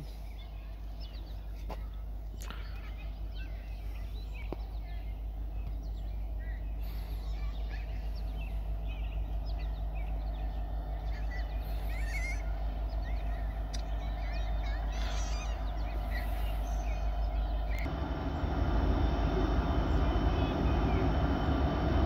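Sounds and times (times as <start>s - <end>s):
distant diesel locomotives rumbling: 0.0s - 22.0s
songbirds chirping and trilling: 0.0s - 22.0s.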